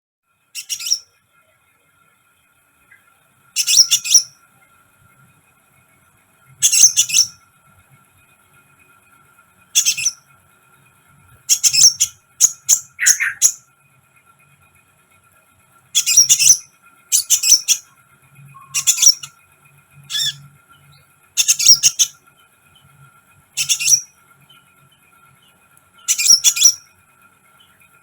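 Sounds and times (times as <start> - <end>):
bird chittering: 0.6 - 1.1, 2.9 - 4.4, 6.6 - 7.4, 9.7 - 10.2, 11.4 - 13.6, 16.0 - 19.4, 20.0 - 22.9, 23.5 - 26.9.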